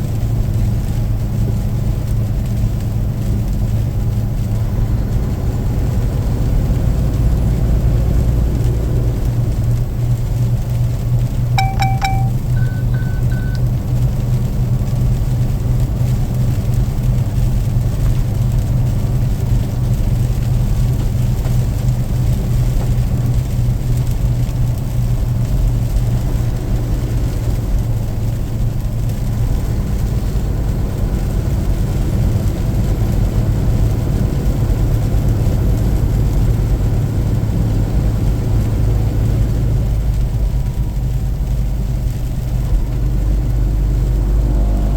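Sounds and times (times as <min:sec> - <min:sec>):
car engine and road drone: 0:00.0 - 0:44.9
electronic tone: 0:11.6 - 0:13.6
quick high beeps: 0:11.6 - 0:13.6.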